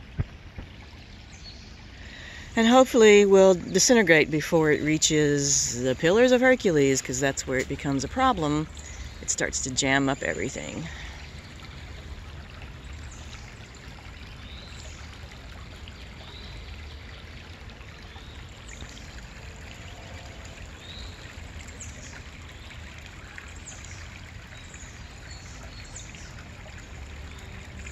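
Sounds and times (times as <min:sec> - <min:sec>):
creek flowing: 0:00.0 - 0:27.9
small birds chirping: 0:07.3 - 0:11.8.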